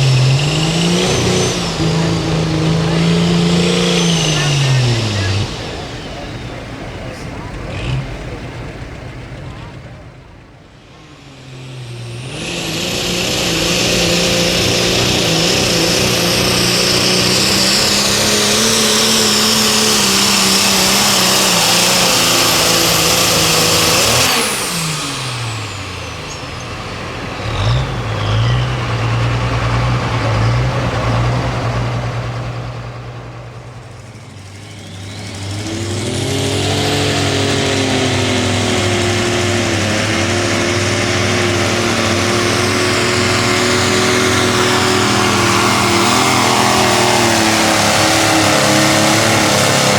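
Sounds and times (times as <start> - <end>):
engine idling: 0.0 - 49.9
pulling tractor engine with turbo whine: 0.0 - 49.9
tractor engine revving: 0.0 - 49.9.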